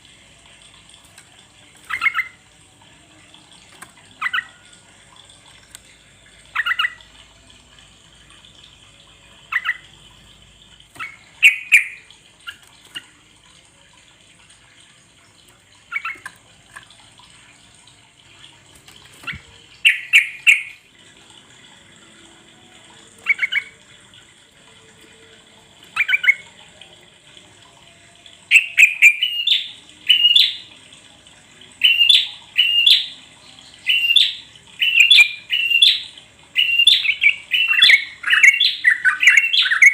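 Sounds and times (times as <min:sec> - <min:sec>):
bird chirping phrases: 0:11.0 - 0:12.6, 0:19.2 - 0:20.8, 0:28.5 - 0:30.7, 0:31.8 - 0:39.9.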